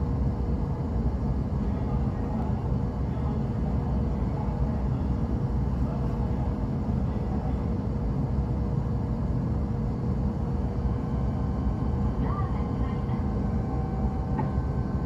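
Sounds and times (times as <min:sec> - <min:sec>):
faint steady hum: 0:00.0 - 0:15.0
train interior rumble: 0:00.0 - 0:15.0.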